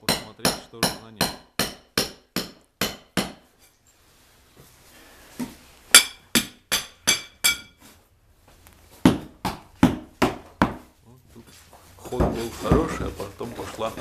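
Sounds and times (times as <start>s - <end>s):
hammer striking brick: 0.0s - 3.4s, 5.9s - 7.8s, 9.0s - 10.8s.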